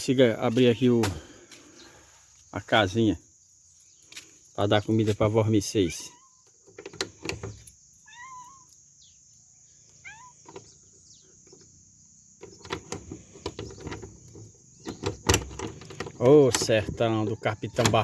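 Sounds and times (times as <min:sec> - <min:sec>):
insects trilling: 0:00.0 - 0:18.0
cats meowing: 0:05.8 - 0:06.4, 0:08.0 - 0:08.8, 0:10.0 - 0:10.4.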